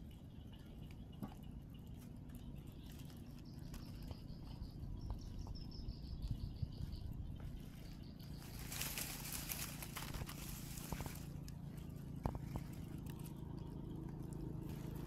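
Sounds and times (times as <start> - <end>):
low outdoor rumble: 0.0 - 15.0
small bird chirping: 0.0 - 15.0
rustling hiss: 8.4 - 11.6.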